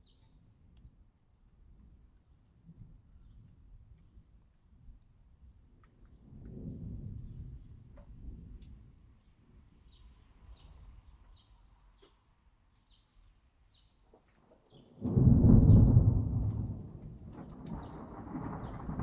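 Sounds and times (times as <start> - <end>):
thunder rumbling: 14.9 - 19.0
loud thunder clap: 15.0 - 19.0.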